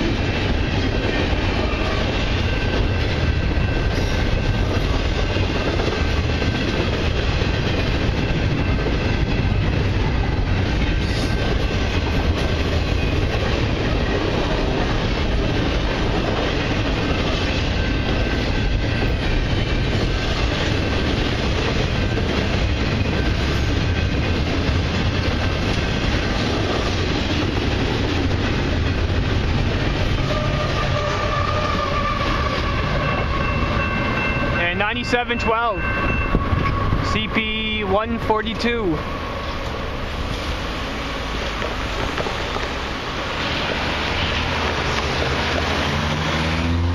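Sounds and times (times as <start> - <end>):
freight train rolling past: 0.0 - 46.9
wheels clacking over rail joints: 39.0 - 46.9.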